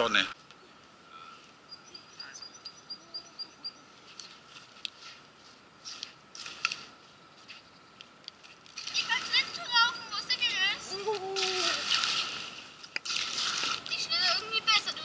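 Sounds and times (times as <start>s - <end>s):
small bird calling: 0.6s - 4.4s, 9.0s - 11.8s.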